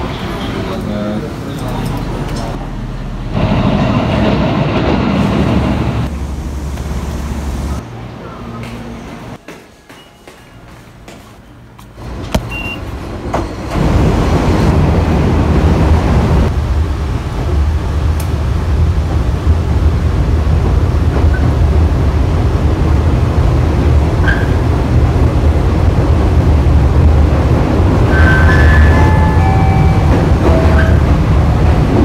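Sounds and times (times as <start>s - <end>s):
train rumbling inside passenger car: 0.0s - 32.0s
short beep: 12.4s - 12.8s.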